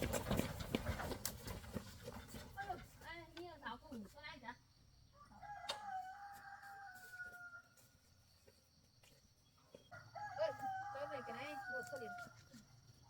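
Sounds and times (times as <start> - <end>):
rooster crowing: 5.2 - 7.9, 9.9 - 12.4.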